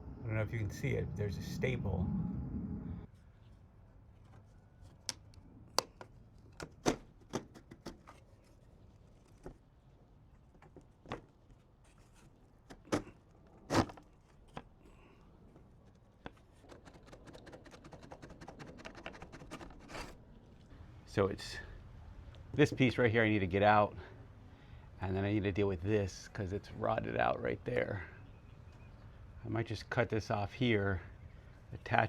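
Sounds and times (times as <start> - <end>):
light scraping: 15.8 - 20.7.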